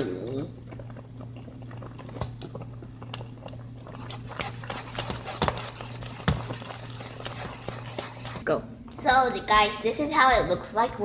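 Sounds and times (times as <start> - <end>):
steady low hum: 0.0 - 11.0
spoon scraping cooking pot: 3.9 - 8.5.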